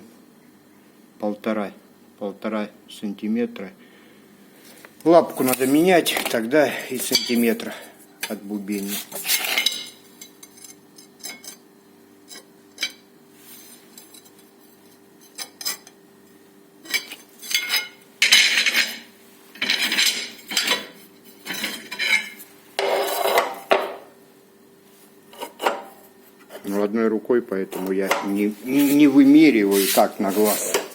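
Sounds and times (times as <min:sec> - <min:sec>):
ceramic scraping: 0:16.8 - 0:24.0, 0:25.3 - 0:26.7, 0:27.7 - 0:30.9
ceramic pieces clinking: 0:16.9 - 0:19.0.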